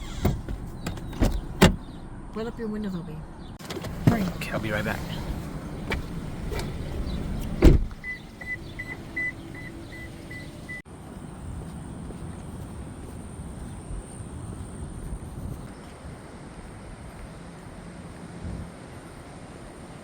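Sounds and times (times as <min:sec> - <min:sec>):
car door slamming: 0:00.0 - 0:01.9, 0:03.6 - 0:09.0
car warning chime beeping: 0:08.0 - 0:10.8.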